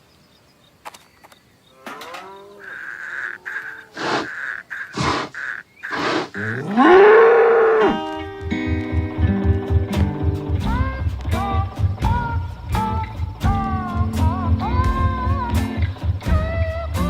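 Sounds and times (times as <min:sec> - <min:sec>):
short animal calls: 0:01.7 - 0:08.1
cow mooing: 0:01.8 - 0:08.2.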